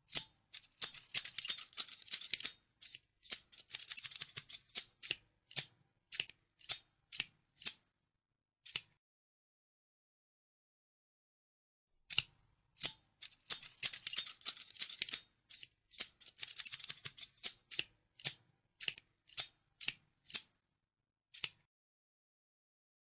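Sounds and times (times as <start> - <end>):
scissors snipping: 0.1 - 7.8, 8.6 - 9.0, 12.1 - 20.5, 21.3 - 21.7.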